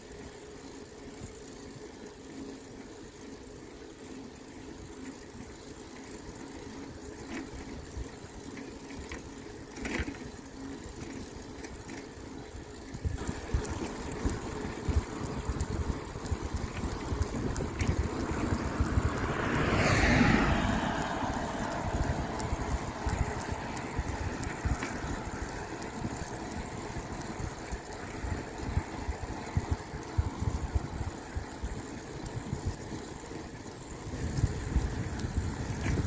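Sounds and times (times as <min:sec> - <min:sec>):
road noise while cycling: 0:00.0 - 0:36.0
wind buffeting microphone: 0:12.9 - 0:36.0
vehicle passing: 0:13.2 - 0:27.2.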